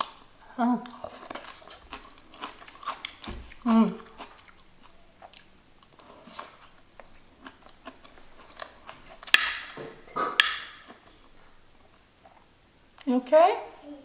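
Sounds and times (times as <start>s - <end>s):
person chewing food: 0.0s - 12.5s
mouth smacks: 10.1s - 11.0s.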